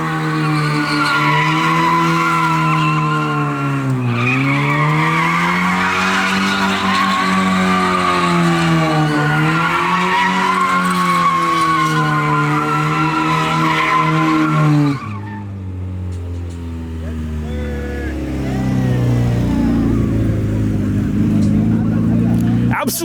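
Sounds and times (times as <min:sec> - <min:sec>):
tyres squealing: 0:00.0 - 0:15.4
car engine at high revs: 0:00.0 - 0:23.0.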